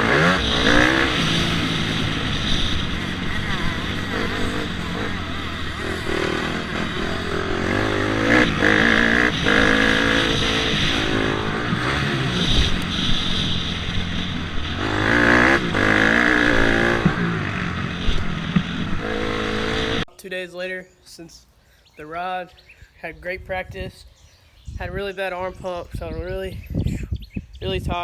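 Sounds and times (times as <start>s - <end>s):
dirt bike engine revving: 0.0s - 20.1s.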